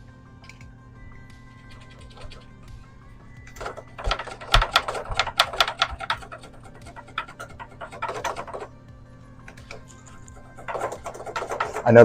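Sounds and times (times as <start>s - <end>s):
razor blade sawing plastic tubing: 1.8s - 2.5s, 3.6s - 8.7s, 9.7s - 12.0s.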